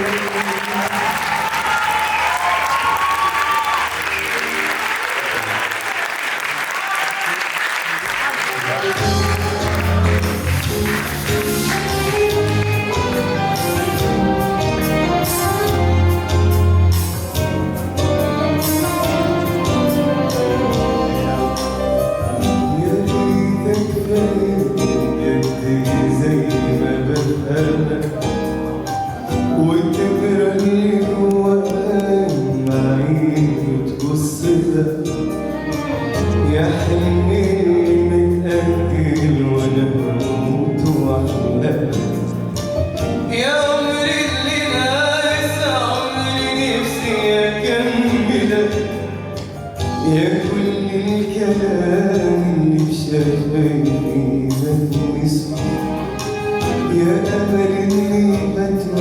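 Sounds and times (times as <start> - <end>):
instrumental backing music: 0.0 - 6.7, 7.7 - 59.0
person singing a song: 18.6 - 28.5, 29.1 - 42.5, 49.9 - 59.0.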